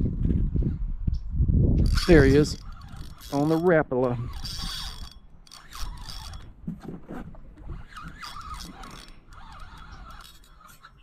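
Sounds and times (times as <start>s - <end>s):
fishing reel ratcheting clicks: 1.8s - 6.5s, 7.8s - 11.0s.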